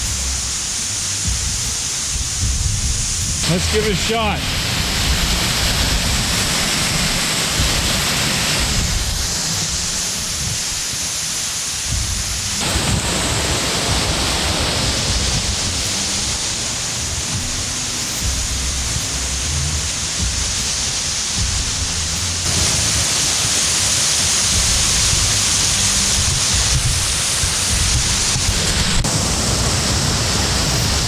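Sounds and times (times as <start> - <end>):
low rumbling: 0.0 - 11.2, 11.8 - 31.0
waterfall roaring: 0.0 - 31.0.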